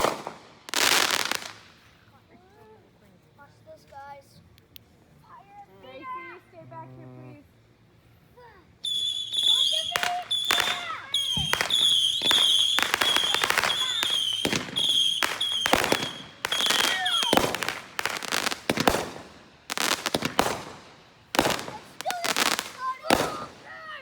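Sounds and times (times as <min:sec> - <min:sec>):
fireworks bangs and crackles: 0:00.0 - 0:01.9, 0:08.8 - 0:24.0
high-pitched fireworks whistle: 0:08.8 - 0:20.8.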